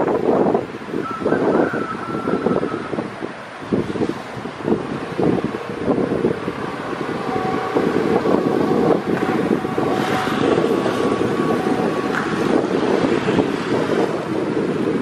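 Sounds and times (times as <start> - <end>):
passenger train rumble: 0.0 - 15.0
wind buffeting microphone: 0.0 - 15.0.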